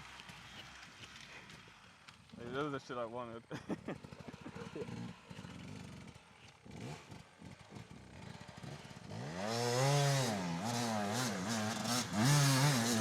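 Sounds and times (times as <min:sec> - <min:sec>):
dirt bike engine revving: 0:03.7 - 0:13.0.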